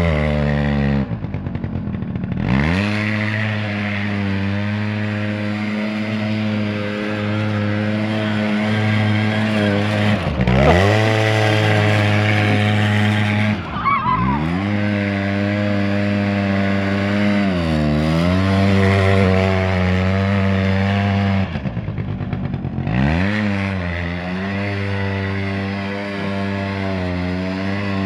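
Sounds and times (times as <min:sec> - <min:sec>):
quad bike engine revving: 0:00.0 - 0:28.0.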